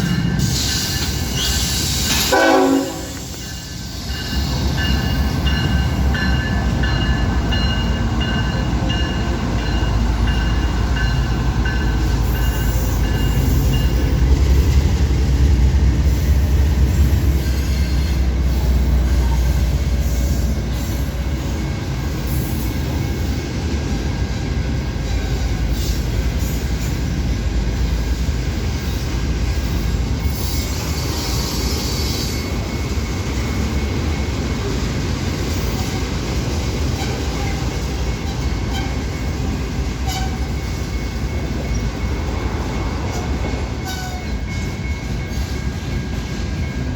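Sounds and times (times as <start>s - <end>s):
freight train rumbling: 0.0s - 46.9s
high wheel squeal: 29.8s - 32.6s.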